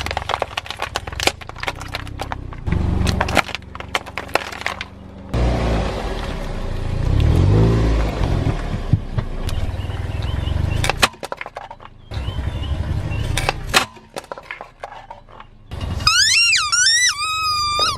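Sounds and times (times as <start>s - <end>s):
tyre crushing objects cracking: 0.0s - 6.4s
car engine running low: 0.0s - 16.1s.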